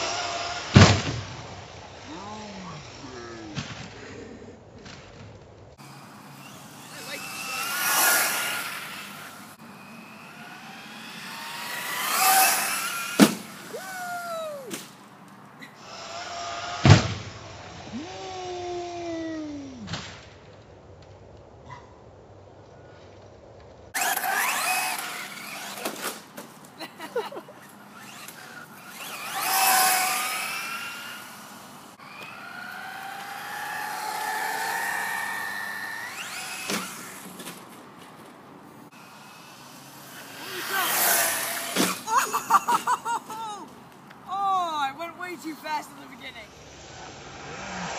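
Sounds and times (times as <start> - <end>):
electric motor whining: 5.8 - 13.9, 24.0 - 26.3, 27.6 - 37.6, 38.9 - 42.3.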